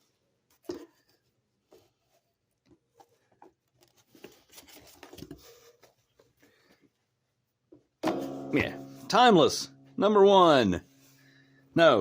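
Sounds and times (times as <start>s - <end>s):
paper rustling: 0.4s - 6.9s.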